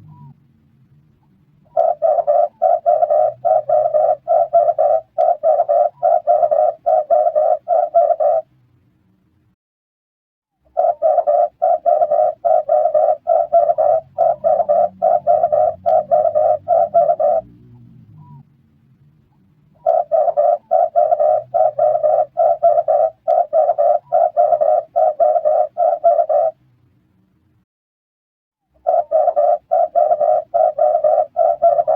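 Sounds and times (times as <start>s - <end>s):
dove cooing: 1.6s - 8.5s, 10.7s - 18.4s, 19.8s - 26.6s, 28.8s - 31.9s.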